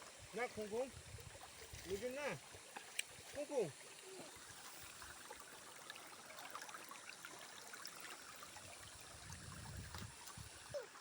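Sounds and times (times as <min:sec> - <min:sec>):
trickling floodwater: 0:00.0 - 0:11.0.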